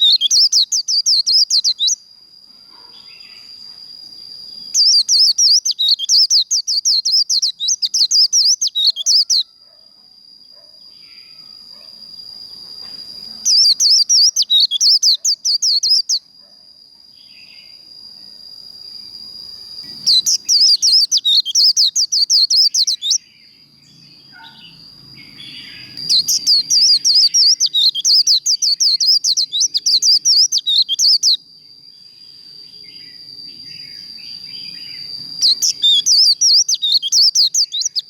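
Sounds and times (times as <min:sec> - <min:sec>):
bird twittering song: 0:00.0 - 0:02.0, 0:04.2 - 0:09.5, 0:12.5 - 0:16.3, 0:19.4 - 0:38.0.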